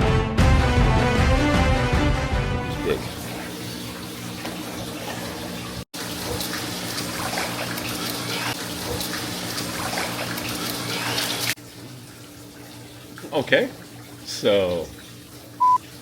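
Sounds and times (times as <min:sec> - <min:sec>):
music: 0:00.0 - 0:03.0
running water rushing: 0:02.7 - 0:16.0.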